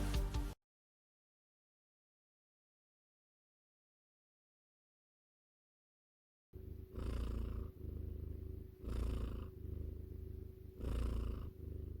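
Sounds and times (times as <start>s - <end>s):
cat purring: 6.6s - 12.0s.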